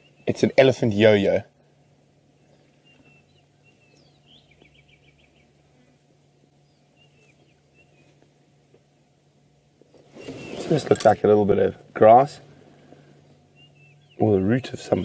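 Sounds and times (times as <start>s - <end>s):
faint bird chirps and whistles: 0.0s - 0.4s, 1.8s - 5.5s, 6.4s - 8.2s, 10.0s - 10.9s, 13.5s - 15.0s
bird trill: 2.8s - 5.5s, 6.5s - 8.1s, 10.1s - 10.8s, 13.5s - 15.0s.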